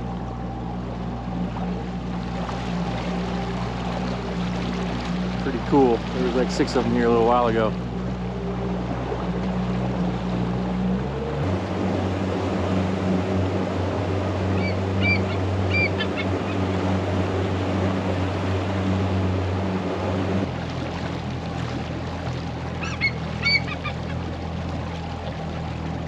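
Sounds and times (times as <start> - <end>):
boat motor humming: 0.0 - 26.0
eagle chirping calls: 14.6 - 16.7, 22.8 - 24.1.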